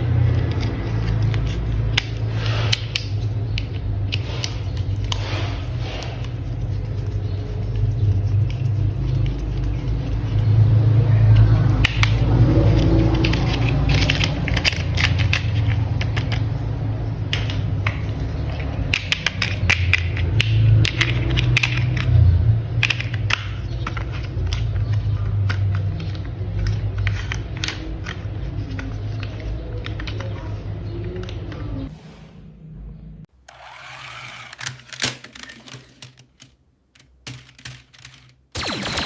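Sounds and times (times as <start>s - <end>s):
plastic toy parts clattering: 11.8s - 16.6s, 34.1s - 38.5s.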